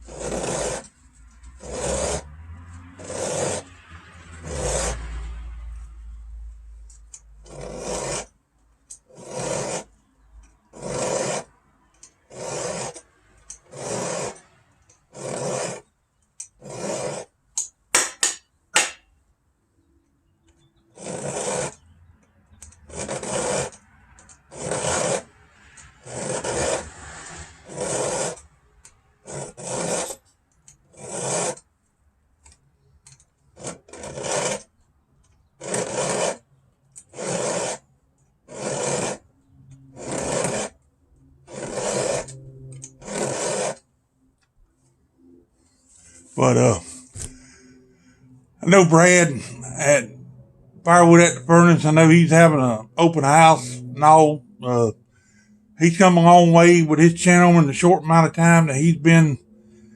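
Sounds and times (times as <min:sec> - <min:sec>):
file rasping on chainsaw chain: 0:00.0 - 0:05.3, 0:06.9 - 0:18.4, 0:20.8 - 0:31.7, 0:33.1 - 0:34.8, 0:35.5 - 0:40.8, 0:41.4 - 0:43.8, 0:50.9 - 0:54.9, 0:55.8 - 0:59.3.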